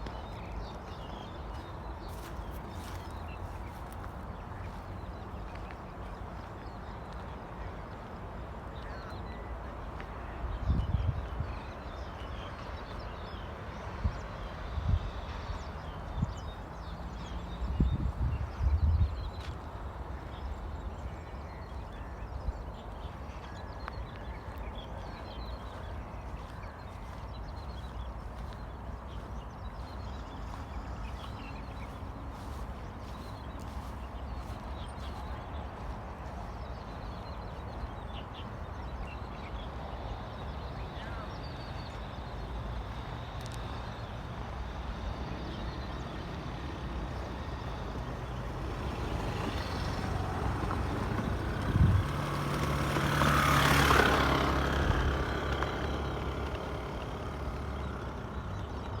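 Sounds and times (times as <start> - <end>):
road traffic rumble: 0.0 - 59.0
heavy vehicle passing: 43.1 - 59.0.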